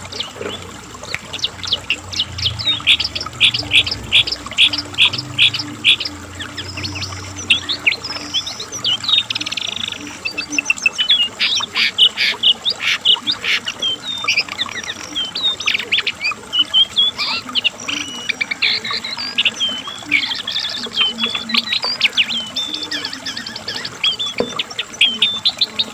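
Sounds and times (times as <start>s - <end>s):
bird singing trills and whistles: 0.0s - 25.9s.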